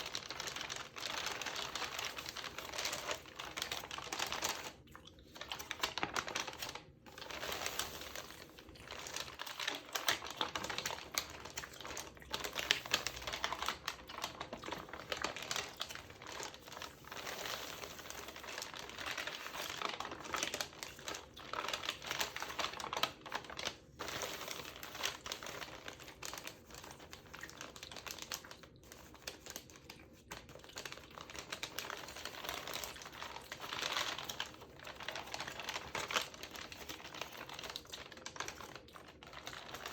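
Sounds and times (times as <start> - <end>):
magazine pages crinkling: 0.0 - 39.9.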